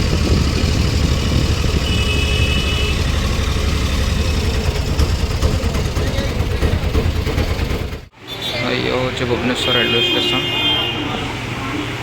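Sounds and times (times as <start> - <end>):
low engine rumble: 0.0 - 8.1.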